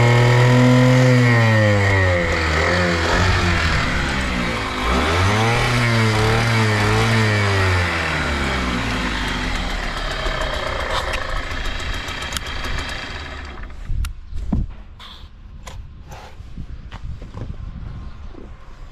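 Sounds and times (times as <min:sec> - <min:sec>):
two-stroke engine revving: 0:00.0 - 0:13.8
light engine ticks: 0:09.9 - 0:14.2.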